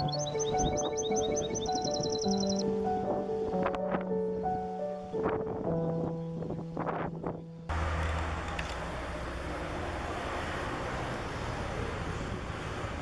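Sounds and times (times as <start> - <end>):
music: 0.0 - 7.7.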